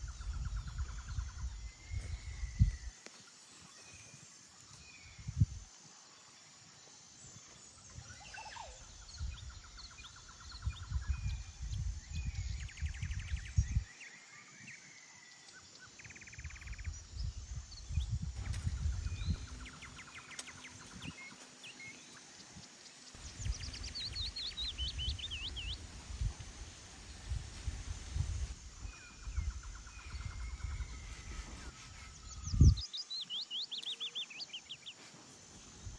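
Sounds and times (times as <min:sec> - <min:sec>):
small birds chirping and trilling: 0:07.2 - 0:26.5, 0:28.8 - 0:35.9
wind gusting against microphone: 0:08.8 - 0:13.9, 0:16.3 - 0:20.1, 0:23.2 - 0:32.9.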